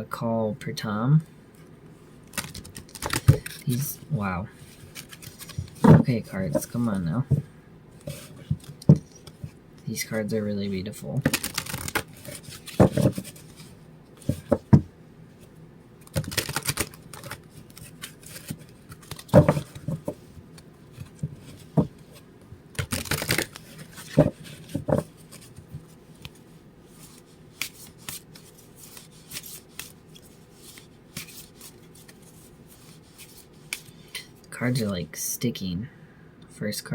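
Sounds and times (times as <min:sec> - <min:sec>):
cards being shuffled: 0:02.3 - 0:09.6, 0:11.2 - 0:14.8, 0:15.4 - 0:22.2, 0:22.8 - 0:34.3.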